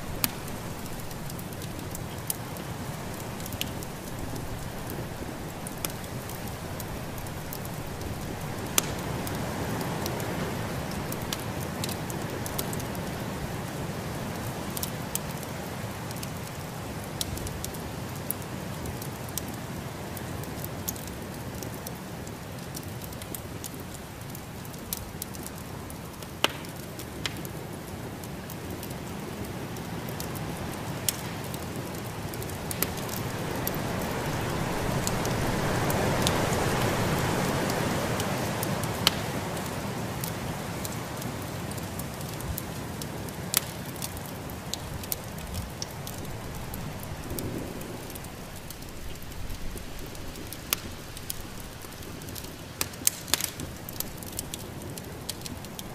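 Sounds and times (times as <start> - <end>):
wood fire crackling: 0.0 - 55.9
snowstorm wind: 31.9 - 39.7, 44.9 - 55.9.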